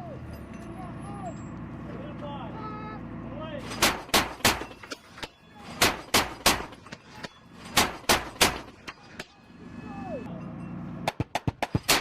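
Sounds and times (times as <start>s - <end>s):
chain gun firing bursts: 3.7s - 4.7s, 7.8s - 8.7s, 11.1s - 12.0s.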